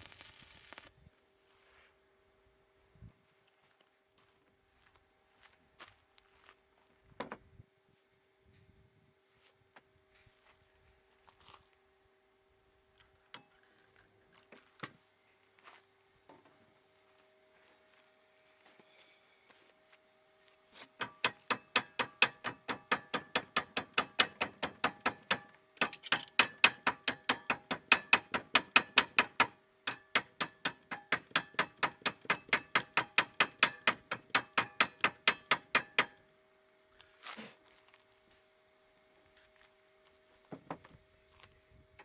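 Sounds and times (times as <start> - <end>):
ratchet tool clicking: 21.0 - 36.2.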